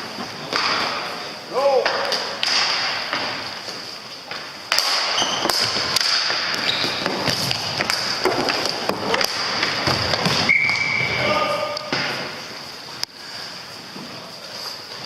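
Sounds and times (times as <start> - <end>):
hall room noise: 0.0 - 15.0
hockey sticks knocking ball: 0.4 - 1.1, 1.8 - 12.4.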